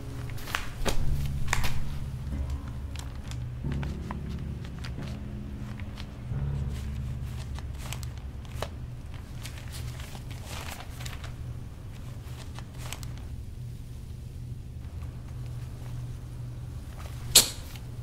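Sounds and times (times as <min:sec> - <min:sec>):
paper rustling: 0:00.0 - 0:13.4
low steady hum: 0:00.0 - 0:18.0.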